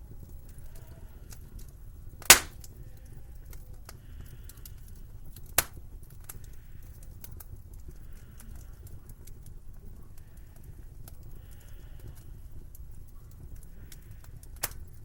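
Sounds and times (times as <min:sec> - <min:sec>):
wood fire crackling: 0:00.0 - 0:15.0
sharp fire pops: 0:02.2 - 0:02.8, 0:05.3 - 0:06.4, 0:14.4 - 0:15.0.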